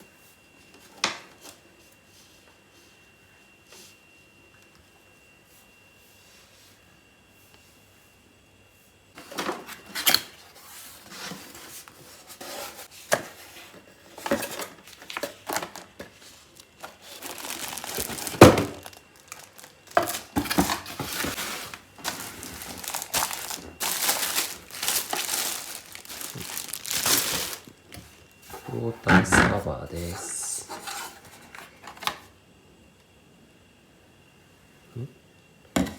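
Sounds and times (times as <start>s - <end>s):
plastic packaging crinkling and tearing: 14.4s - 28.0s.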